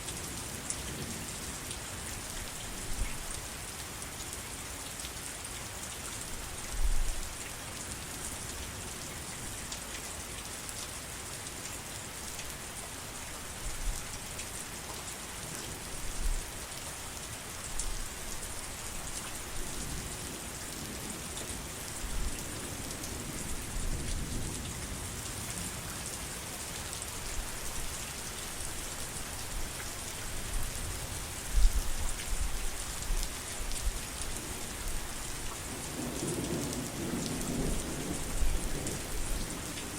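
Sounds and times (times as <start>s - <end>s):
heavy rain pattering: 18.3s - 39.9s.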